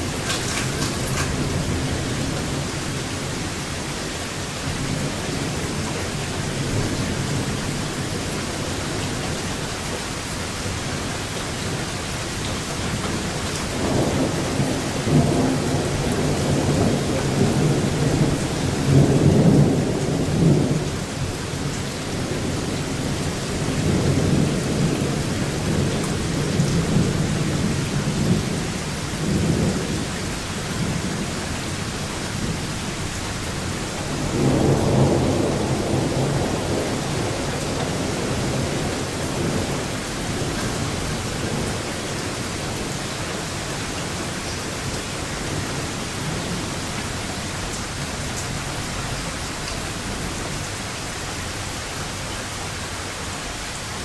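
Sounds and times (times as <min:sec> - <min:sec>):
thunder rumbling: 0:00.0 - 0:03.3, 0:11.7 - 0:49.2
steady rain falling: 0:00.0 - 0:54.0.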